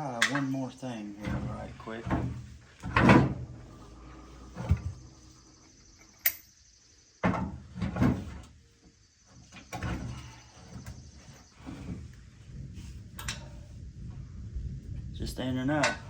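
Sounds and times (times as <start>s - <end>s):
metal parts clanking and rattling: 13.2s - 13.6s.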